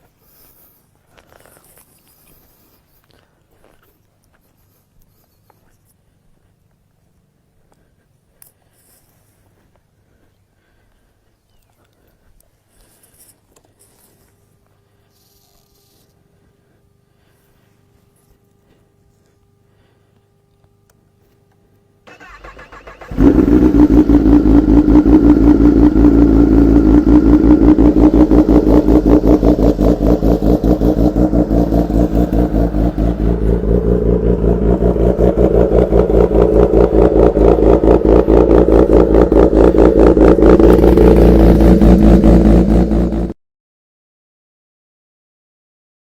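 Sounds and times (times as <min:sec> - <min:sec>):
motorcycle engine idling: 0:22.2 - 0:43.3.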